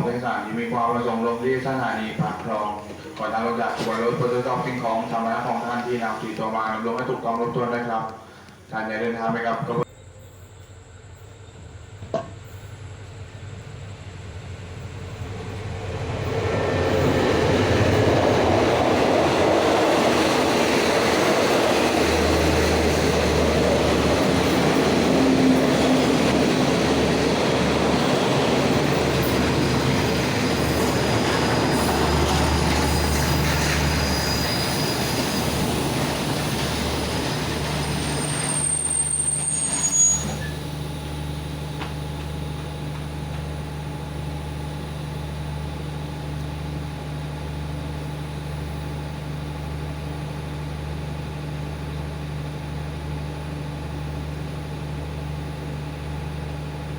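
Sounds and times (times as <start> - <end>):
train wheels rumbling on rails: 0.0 - 10.0, 10.6 - 56.9
wheel squeal: 30.0 - 40.9.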